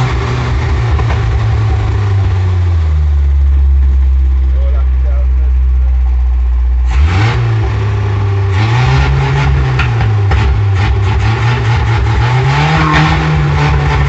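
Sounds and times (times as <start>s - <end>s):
car engine running loudly: 0.0s - 14.0s
exhaust popping: 0.0s - 14.0s.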